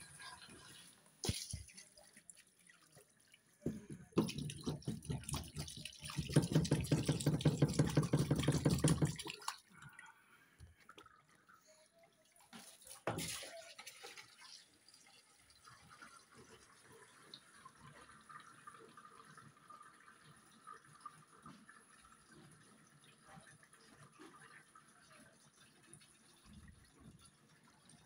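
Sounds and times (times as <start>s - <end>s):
water pouring and splashing: 0.0s - 10.0s, 10.6s - 28.0s
water drips: 0.0s - 15.8s.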